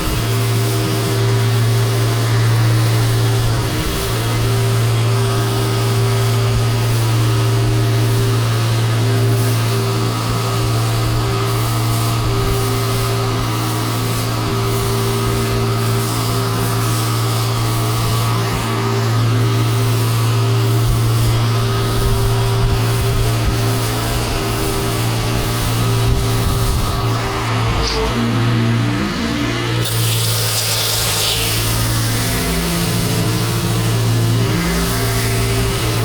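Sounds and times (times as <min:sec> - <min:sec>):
pressure washer hum: 0:00.0 - 0:36.0
spray hissing: 0:18.8 - 0:36.0.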